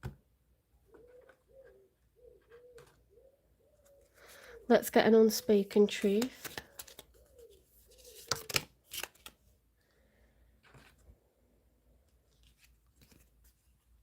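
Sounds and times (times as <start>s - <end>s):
cards rustling: 5.7s - 9.6s, 12.0s - 14.0s.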